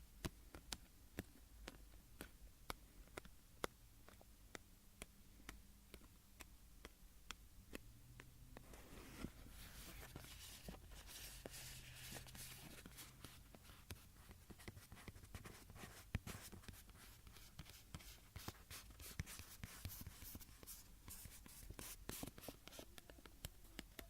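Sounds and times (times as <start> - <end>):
soft close-up scratching: 8.6 - 22.9
small clicks and taps: 22.5 - 24.0.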